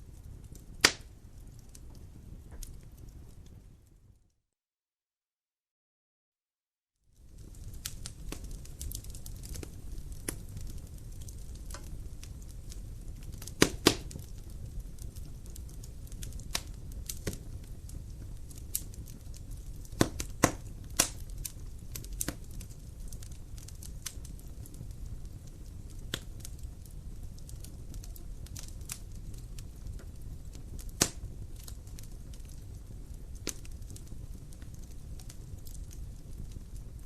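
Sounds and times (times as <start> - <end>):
wood fire crackling: 0.0 - 4.3, 7.0 - 37.0.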